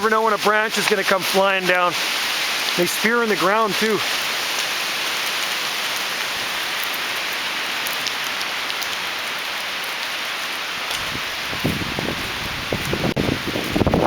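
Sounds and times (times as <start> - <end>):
wind rushing through trees: 10.2 - 14.0
wind buffeting microphone: 10.9 - 14.0.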